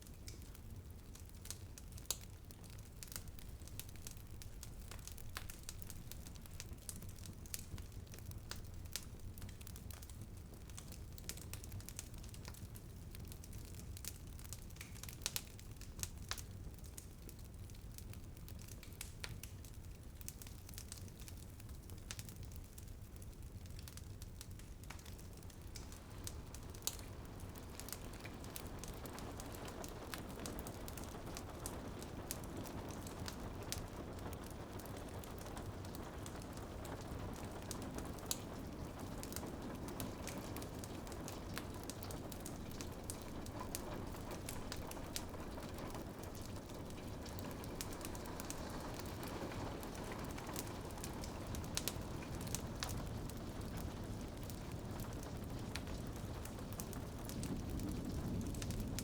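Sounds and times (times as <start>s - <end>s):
wood fire crackling and popping: 0.0s - 59.0s
soft hiss: 22.7s - 59.0s.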